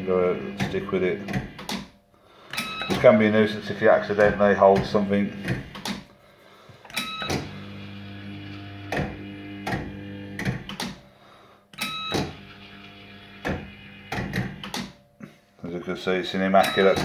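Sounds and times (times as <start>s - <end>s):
humming of spinning reels: 0.0s - 1.6s
fruit machine beep: 2.6s - 3.3s, 7.0s - 8.4s, 11.8s - 13.7s, 16.6s - 17.0s
fruit machine reel clunks: 16.6s - 17.0s.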